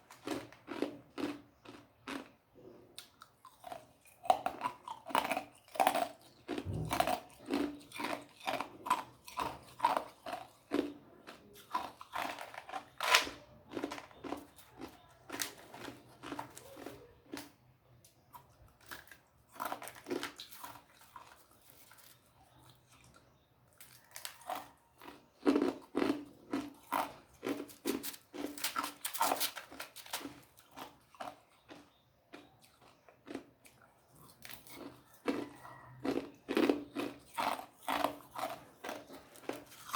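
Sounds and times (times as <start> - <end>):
ice crunched between teeth: 11.7 - 14.6, 23.8 - 31.8.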